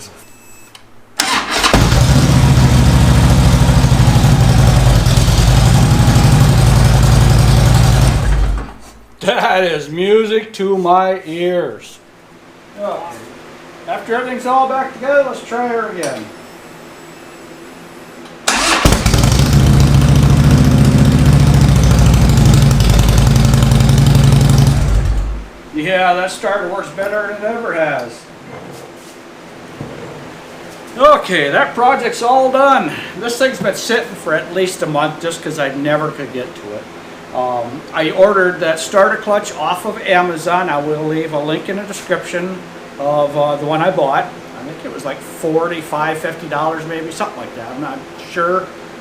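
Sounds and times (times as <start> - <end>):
electric starter cranking: 1.2 - 8.8, 18.5 - 25.4
motorcycle engine idling: 1.8 - 8.6, 18.5 - 25.4.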